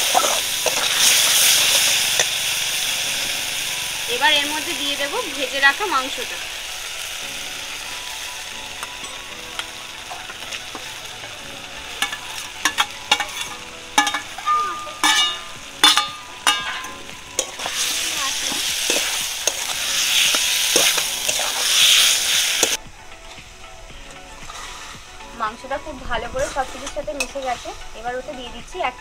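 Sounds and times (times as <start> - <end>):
chicken sizzling in a pan: 0.0 - 22.8, 24.4 - 25.3
steel spatula scraping a pan: 9.0 - 22.8, 24.4 - 25.1, 26.2 - 28.0.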